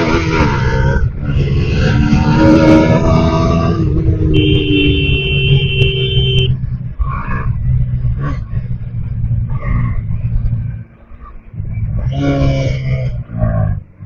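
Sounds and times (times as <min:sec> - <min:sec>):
wind rumble on microphone: 0:00.0 - 0:14.0
motorcycle engine running: 0:02.0 - 0:12.0
steady high tone: 0:04.3 - 0:06.6.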